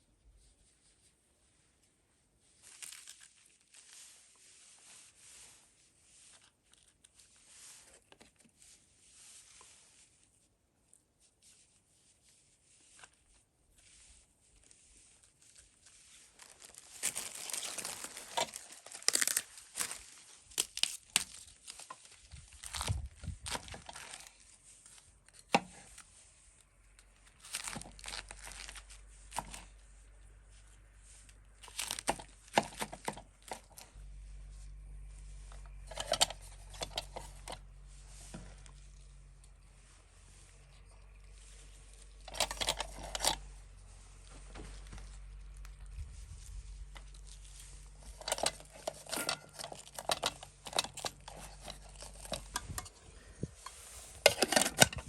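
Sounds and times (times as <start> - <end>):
rustling: 0.0 - 55.0
paper tearing and crumpling: 2.6 - 5.0, 14.0 - 24.7, 27.3 - 29.7, 31.1 - 33.8, 46.8 - 52.7
scraping: 13.8 - 55.0.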